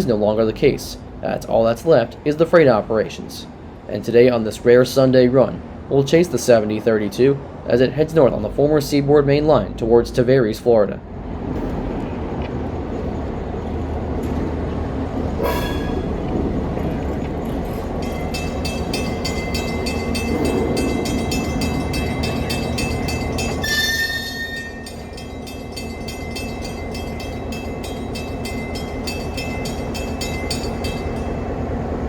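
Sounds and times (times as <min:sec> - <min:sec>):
diesel locomotive engine running: 0:00.0 - 0:32.0
bell ringing: 0:15.4 - 0:16.3, 0:17.6 - 0:32.0.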